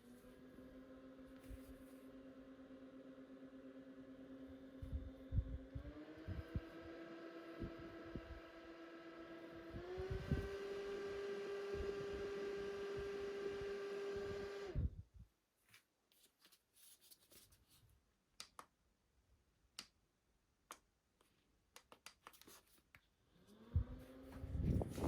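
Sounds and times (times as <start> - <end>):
small electric fan motor whining: 0.0 - 15.0, 23.3 - 25.0.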